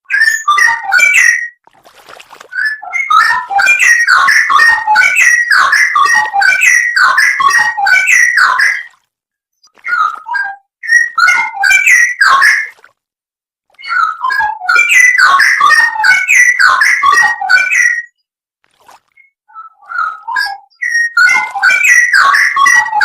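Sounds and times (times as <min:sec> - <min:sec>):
bird singing whistled notes: 0:09.9 - 0:12.6, 0:19.2 - 0:23.0.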